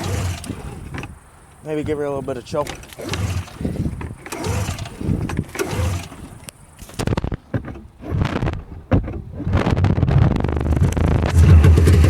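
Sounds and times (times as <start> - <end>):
engine turning over: 0.0 - 12.0
recoil starter rope pulled: 0.0 - 12.0.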